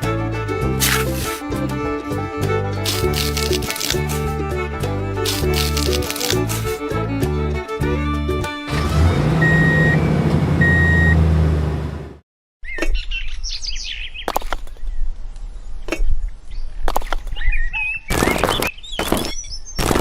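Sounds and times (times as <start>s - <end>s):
low motor drone: 7.6s - 12.2s.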